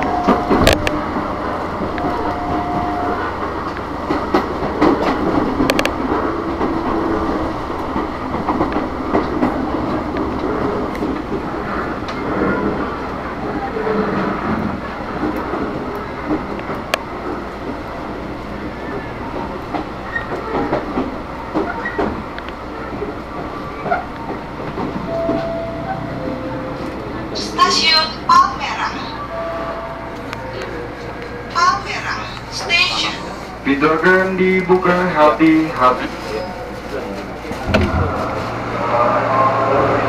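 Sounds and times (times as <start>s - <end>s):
sharp clicks from rails: 0.0s - 2.4s, 3.4s - 13.2s, 14.0s - 26.0s
train wheels rumbling: 0.0s - 40.0s.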